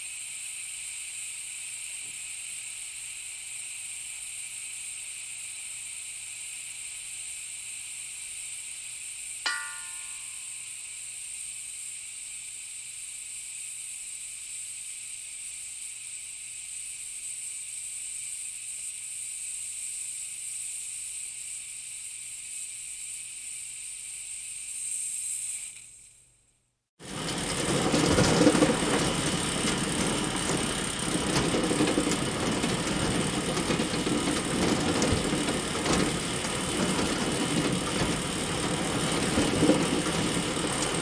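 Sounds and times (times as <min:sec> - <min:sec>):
click with brief ring: 0:09.5 - 0:10.8.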